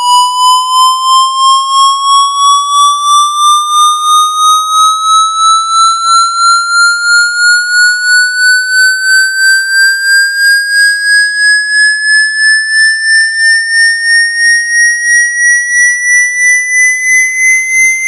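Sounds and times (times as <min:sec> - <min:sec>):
pulsing rising electronic tone: 0:01.1 - 0:14.3.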